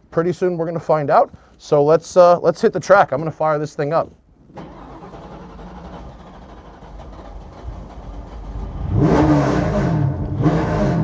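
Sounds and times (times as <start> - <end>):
engine cranking: 4.4 - 9.5
engine rumbling and revving: 4.5 - 11.0.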